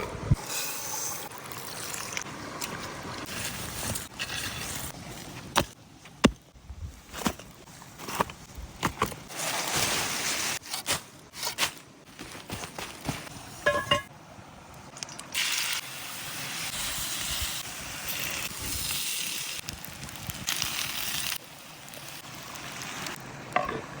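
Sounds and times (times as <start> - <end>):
food sizzling: 15.0 - 23.2.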